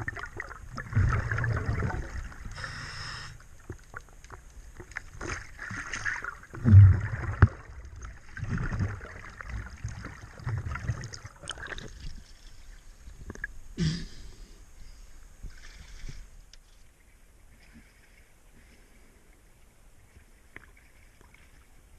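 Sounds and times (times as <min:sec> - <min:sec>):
bubbling exhaled air: 0:00.0 - 0:03.4, 0:06.5 - 0:12.1
regulator hissing inhalations: 0:02.5 - 0:03.4.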